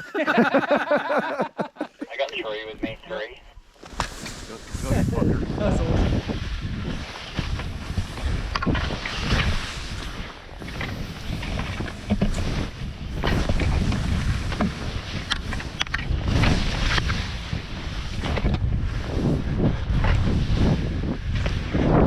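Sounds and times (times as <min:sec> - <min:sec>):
wind buffeting microphone: 0:04.4 - 0:22.0.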